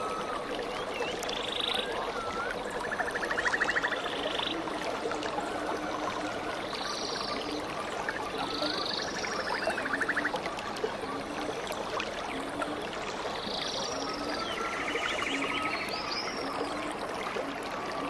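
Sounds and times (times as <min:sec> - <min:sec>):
stream water flowing: 0:00.0 - 0:18.0.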